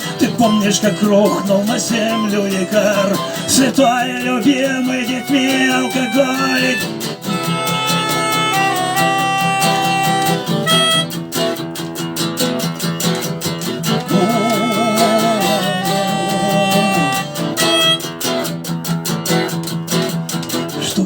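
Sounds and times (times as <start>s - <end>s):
guitar strumming: 0.0s - 21.0s
wavering vibrato melody: 0.2s - 11.6s, 13.4s - 18.6s.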